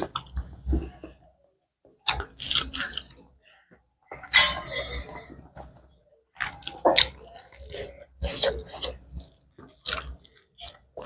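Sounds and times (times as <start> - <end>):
person biting and chewing food: 2.0 - 3.2, 6.4 - 11.0.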